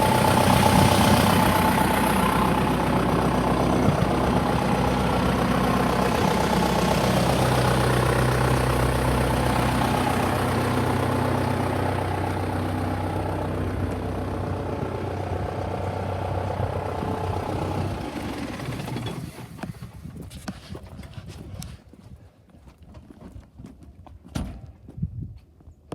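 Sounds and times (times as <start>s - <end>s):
tractor diesel engine running: 0.0s - 20.2s.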